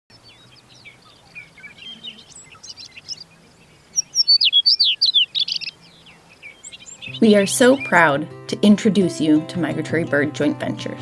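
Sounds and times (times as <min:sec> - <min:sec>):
bird song with trills: 0:00.1 - 0:08.0
songbirds chirping: 0:00.1 - 0:08.0.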